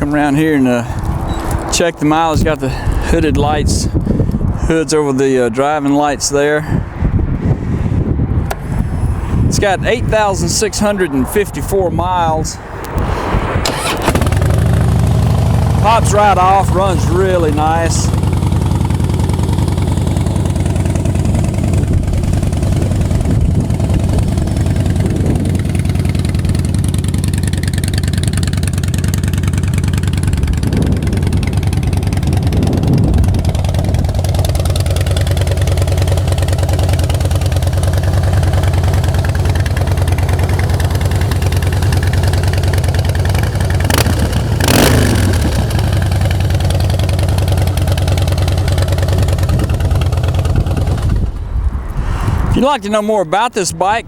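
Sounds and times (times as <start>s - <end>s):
motorcycle throttle blips: 12.8s - 51.6s
motorcycle engine idling: 13.7s - 51.5s.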